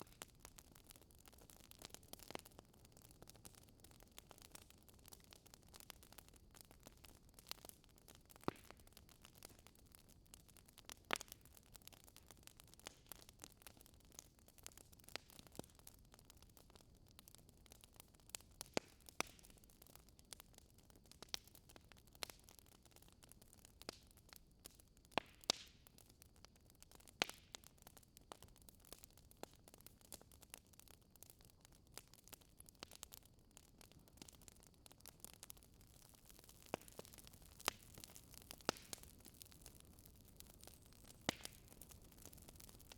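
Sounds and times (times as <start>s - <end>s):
fireplace fire crackling: 0.0s - 42.9s
soft fire hiss: 35.7s - 42.9s.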